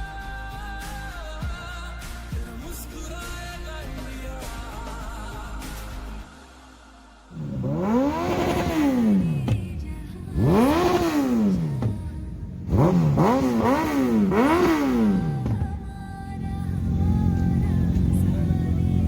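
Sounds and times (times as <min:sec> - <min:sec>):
motorcycle engine revving: 0:07.3 - 0:19.0.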